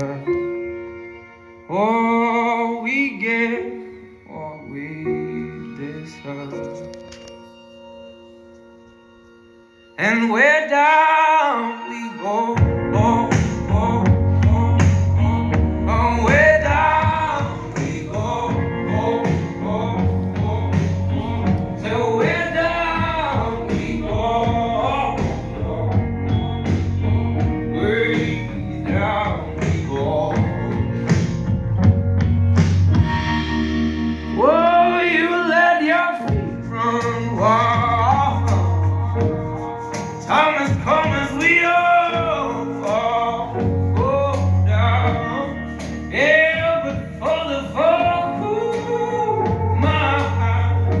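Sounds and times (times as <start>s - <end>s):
song with male vocals: 0.0s - 7.9s, 9.6s - 51.0s
strong bass line: 12.6s - 35.7s, 36.3s - 51.0s.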